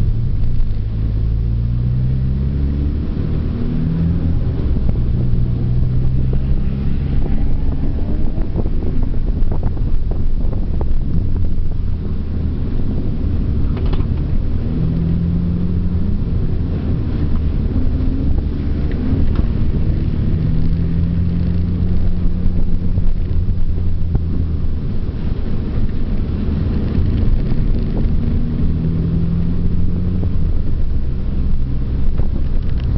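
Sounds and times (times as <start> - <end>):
car engine running: 0.0 - 32.9
road and wind noise: 0.0 - 32.9.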